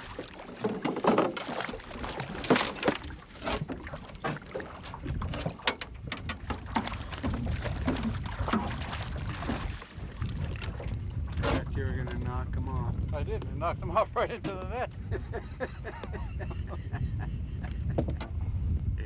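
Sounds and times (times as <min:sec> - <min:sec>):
knocks and rattles in a boat: 0:00.0 - 0:18.5
wind rumbling on microphone: 0:00.0 - 0:19.0.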